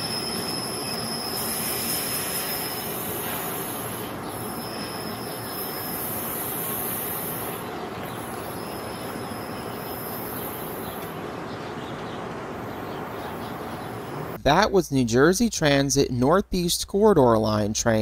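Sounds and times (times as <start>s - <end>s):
train wheels squealing: 0.0s - 7.6s
train rolling noise: 0.0s - 14.4s.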